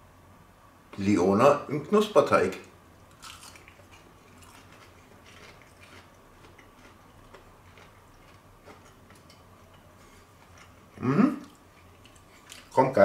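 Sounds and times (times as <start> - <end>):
low steady hum: 0.0 - 13.0
crunchy chewing: 3.1 - 13.0.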